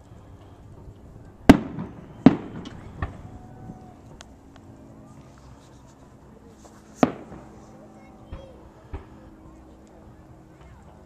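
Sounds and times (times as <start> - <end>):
faint firework pops: 6.9 - 7.6
firework shells bursting: 6.9 - 7.6.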